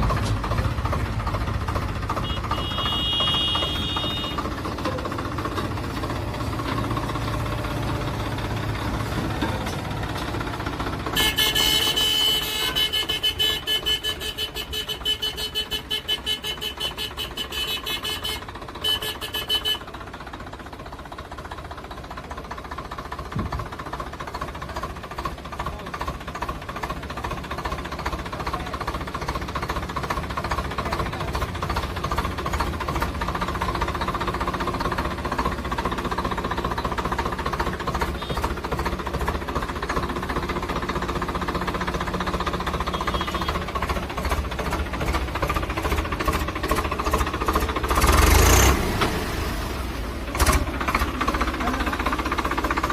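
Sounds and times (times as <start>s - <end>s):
diesel tractor engine knocking: 0.0s - 52.9s.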